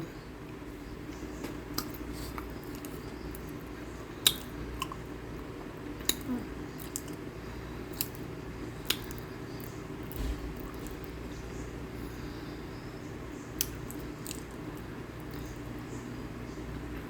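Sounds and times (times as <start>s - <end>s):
steady low hum: 0.0s - 17.0s
crisp chunks being chewed: 1.5s - 7.3s, 7.9s - 11.2s, 13.6s - 15.8s.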